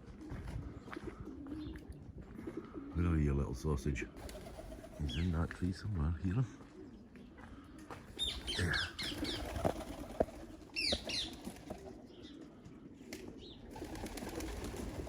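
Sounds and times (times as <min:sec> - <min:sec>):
parakeet calling: 0:08.2 - 0:09.5.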